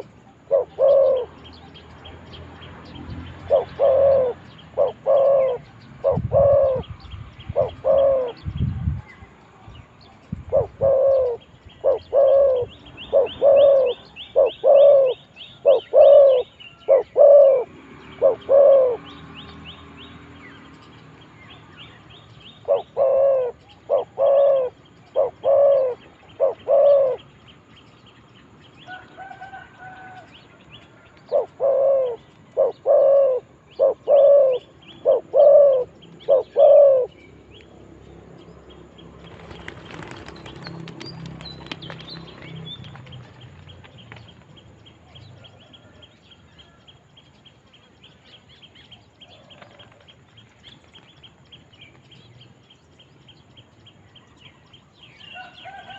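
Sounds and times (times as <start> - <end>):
doves cooing: 0.0 - 1.5, 3.4 - 8.4, 10.4 - 19.2, 22.5 - 27.4, 28.9 - 37.2
small birds chirping: 0.0 - 55.9.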